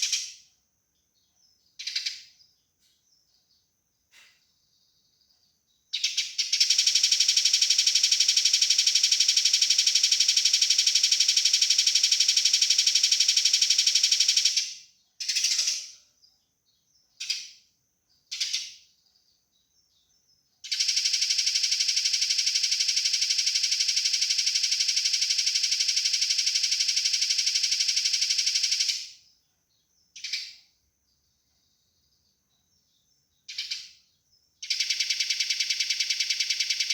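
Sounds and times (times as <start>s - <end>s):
sparrow chattering rattle: 0.0s - 0.4s, 1.8s - 2.4s, 5.9s - 16.0s, 17.2s - 17.6s, 18.3s - 18.8s, 20.6s - 29.2s, 30.2s - 30.7s, 33.4s - 34.0s, 34.6s - 36.9s
sparrow chirps: 0.0s - 36.9s.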